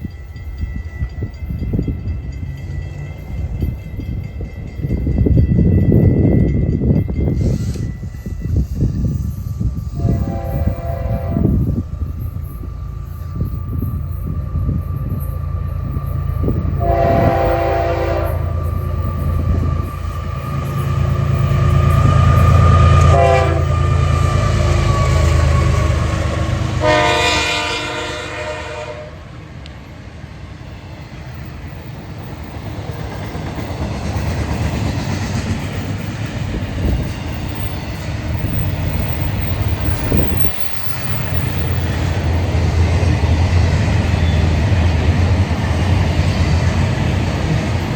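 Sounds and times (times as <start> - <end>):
train cars rolling by: 0.0 - 47.9
locomotive engine rumble: 0.1 - 47.9
train horn blasts: 9.9 - 11.8, 16.4 - 19.6, 21.3 - 29.3.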